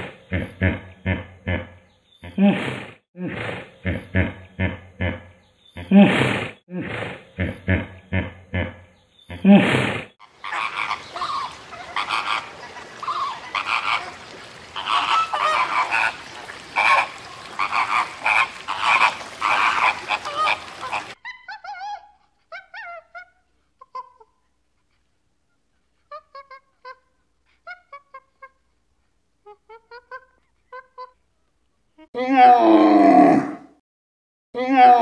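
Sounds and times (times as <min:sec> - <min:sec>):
flamingos honking and chattering: 0:10.2 - 0:21.6.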